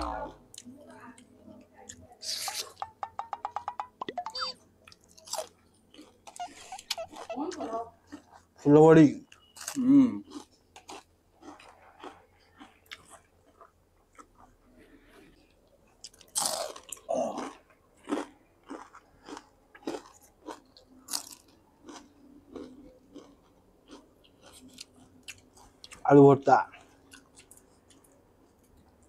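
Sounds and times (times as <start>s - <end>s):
chewing and crunching: 4.8s - 29.0s.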